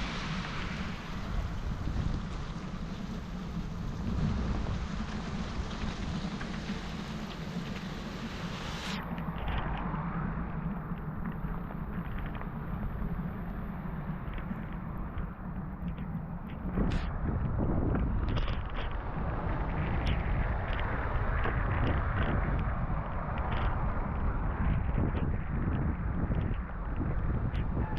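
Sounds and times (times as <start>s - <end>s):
heavy rain falling: 0.0s - 9.0s
wind buffeting microphone: 0.0s - 27.9s.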